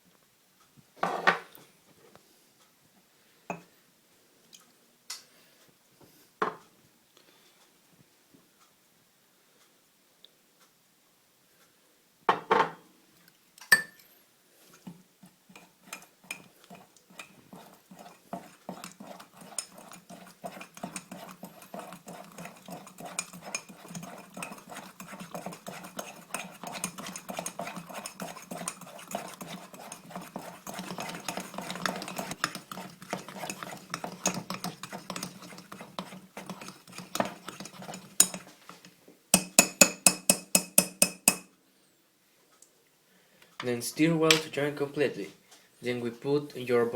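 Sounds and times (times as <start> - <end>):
utensil scraping a bowl: 14.6 - 41.4
utensil knocking on bowl: 16.3 - 38.5, 39.4 - 41.5.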